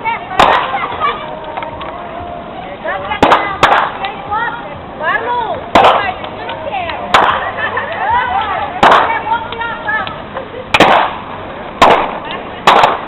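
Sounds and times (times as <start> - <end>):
people calling and shouting: 0.0 - 13.0
firecrackers banging: 0.2 - 2.0, 2.8 - 4.4, 5.1 - 13.0.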